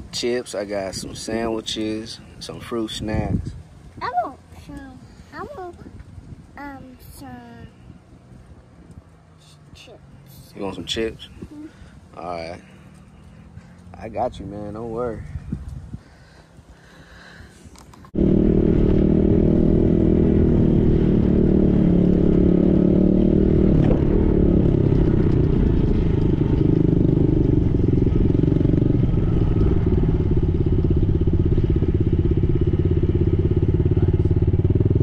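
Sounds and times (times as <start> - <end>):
dirt bike engine running: 18.2 - 35.0.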